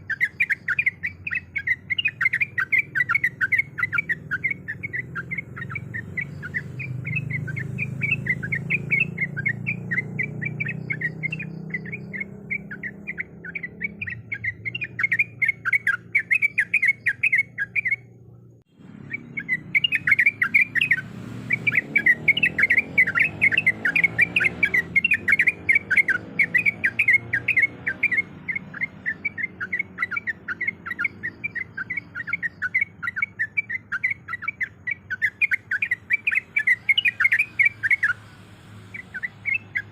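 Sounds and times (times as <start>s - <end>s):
bird chirping rapidly: 0.0s - 39.9s.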